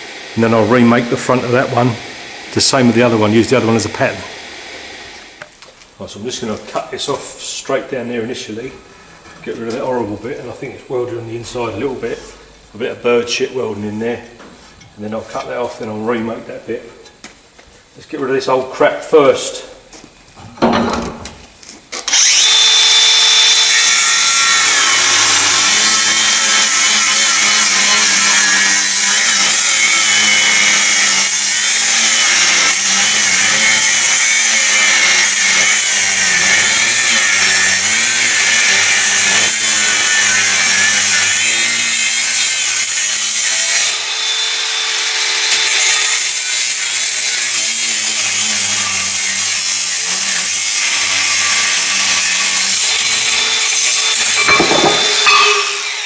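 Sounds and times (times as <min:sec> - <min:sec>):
angle grinder cutting steel: 0:22.0 - 0:56.0.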